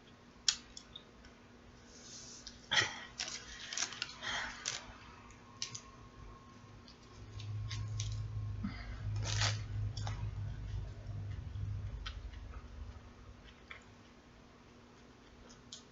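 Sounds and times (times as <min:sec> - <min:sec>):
sandwich paper crinkling: 0:02.9 - 0:04.9, 0:09.1 - 0:09.7.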